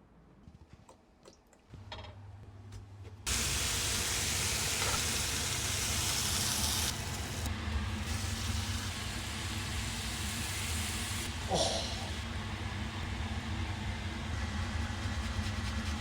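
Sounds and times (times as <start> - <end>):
chicken sizzling in a pan: 3.3 - 16.0.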